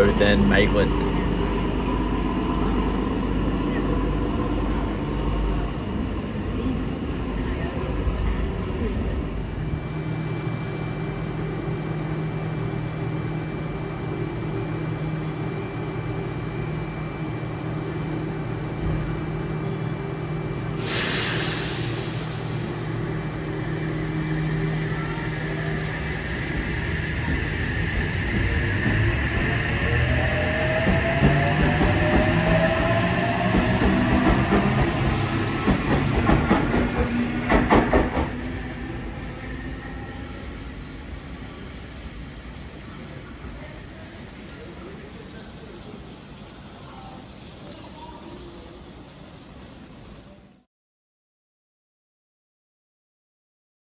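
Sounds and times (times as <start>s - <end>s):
diesel train engine humming: 0.0s - 48.0s
compressed air hiss: 20.6s - 23.0s.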